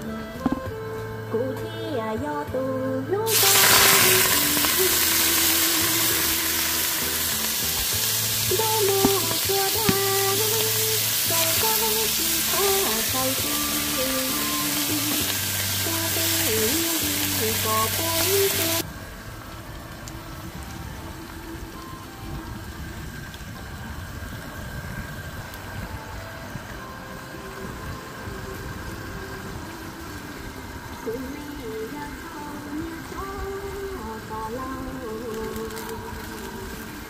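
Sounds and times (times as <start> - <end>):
background music melody: 0.0 - 37.0
low steady rumble: 0.0 - 37.0
greens sizzling in a pan: 3.3 - 18.9, 27.6 - 37.0.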